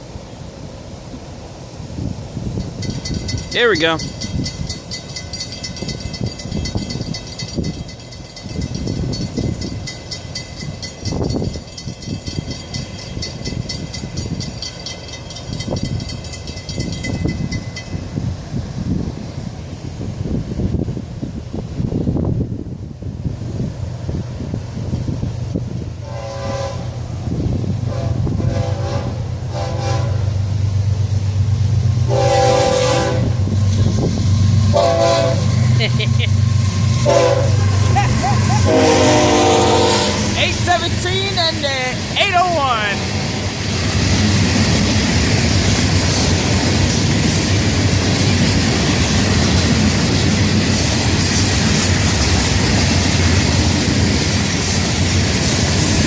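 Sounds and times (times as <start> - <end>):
crossing warning bell ringing: 2.6 - 18.4, 26.3 - 43.6
locomotive air horn blasts: 26.0 - 27.0, 27.8 - 30.3, 32.1 - 33.4, 34.7 - 35.6, 37.0 - 37.7, 38.6 - 40.4.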